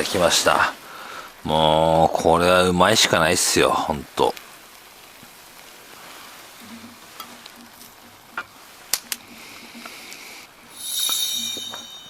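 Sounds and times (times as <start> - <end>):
noodles sizzling in a frying pan: 3.4 - 7.2.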